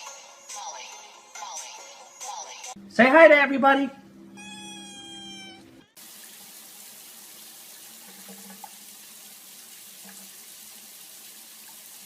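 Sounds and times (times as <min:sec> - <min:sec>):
water running from a tap: 0:06.0 - 0:12.0.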